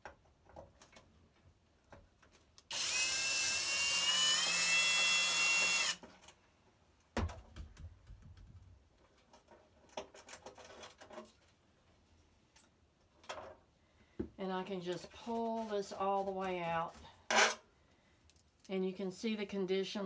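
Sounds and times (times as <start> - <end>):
power drill whining: 2.7 - 6.0.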